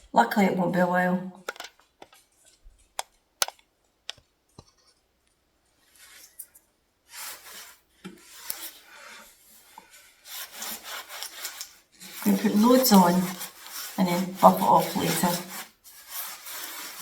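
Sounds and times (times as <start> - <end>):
sharp clicks and taps: 3.0 - 4.8
cloth rubbing on surface: 7.1 - 17.0.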